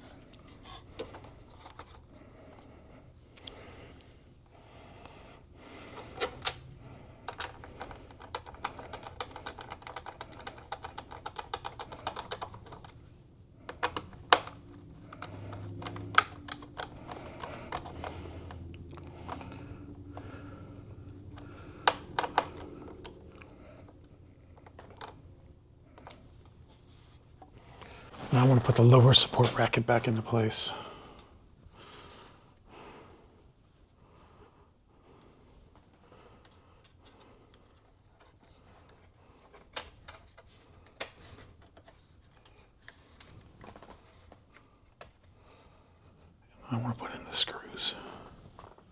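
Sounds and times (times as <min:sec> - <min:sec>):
computer parts clicking and tapping: 0:07.2 - 0:13.0, 0:13.7 - 0:19.7, 0:21.2 - 0:23.2.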